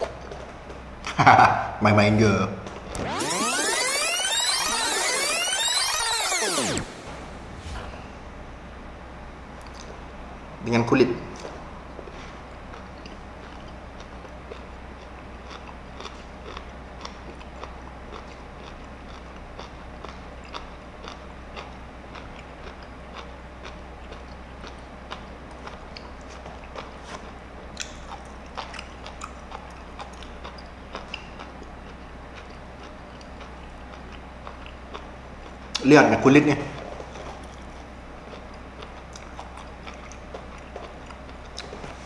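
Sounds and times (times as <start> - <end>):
person chewing with wet crunches: 11.4 - 35.8, 36.7 - 42.0.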